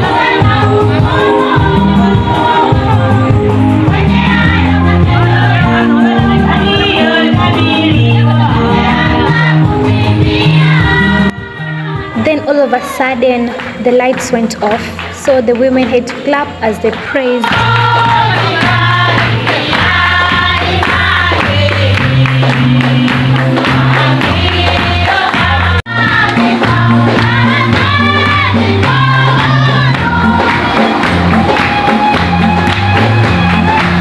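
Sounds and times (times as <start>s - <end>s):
rhythmic hand clapping: 0.0s - 11.3s, 13.2s - 34.0s
women's choir singing gospel: 0.0s - 15.0s, 16.7s - 34.0s
steady bass line: 17.5s - 34.0s.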